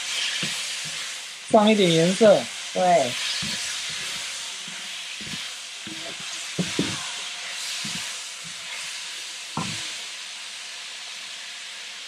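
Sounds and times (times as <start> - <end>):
wooden spatula scraping wok: 0.0 - 2.3, 3.0 - 10.1
meat sizzling in a wok: 0.0 - 12.0.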